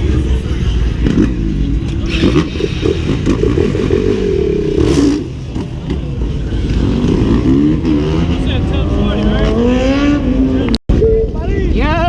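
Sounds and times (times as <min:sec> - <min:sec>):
dirt bike engine revving: 0:01.1 - 0:10.7.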